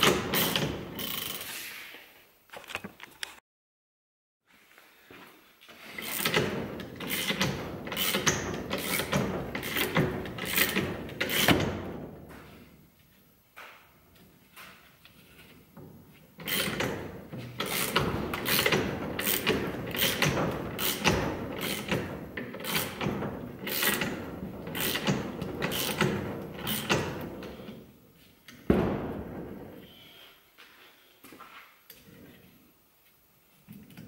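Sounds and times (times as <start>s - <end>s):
steady mechanical noise: 0.0s - 1.6s, 5.9s - 12.6s, 15.1s - 30.3s
loud thump: 28.7s - 29.8s.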